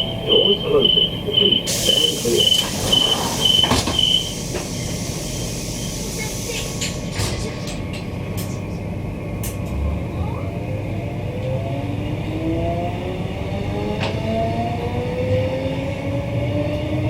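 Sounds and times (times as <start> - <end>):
high beeping: 0.0 - 4.4
train carriage rumble: 0.0 - 17.0.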